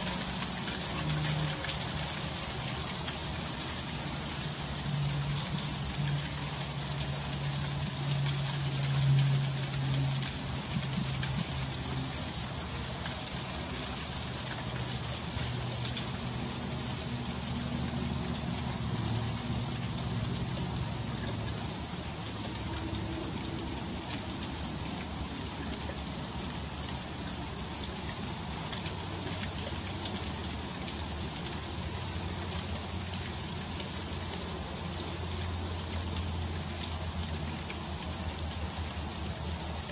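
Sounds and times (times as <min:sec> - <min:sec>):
low hum shifting in pitch: 0:00.0 - 0:28.6
freezing rain ticking on ice: 0:00.0 - 0:39.9.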